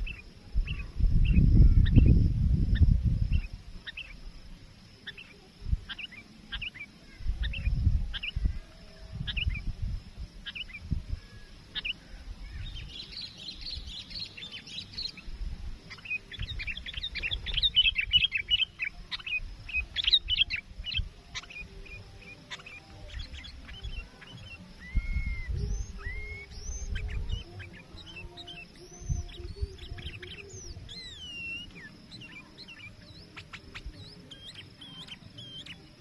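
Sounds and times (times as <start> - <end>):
low microphone rumble: 0.0 - 4.5, 7.2 - 11.4, 24.7 - 31.2
bulbul chirping: 12.7 - 36.0.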